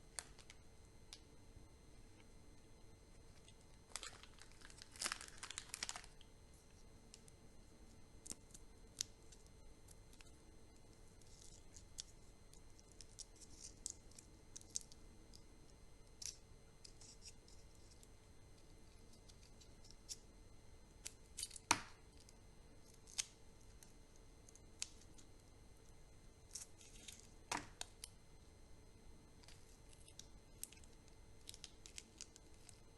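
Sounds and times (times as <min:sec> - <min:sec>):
wrappers crinkling: 0:03.9 - 0:06.2.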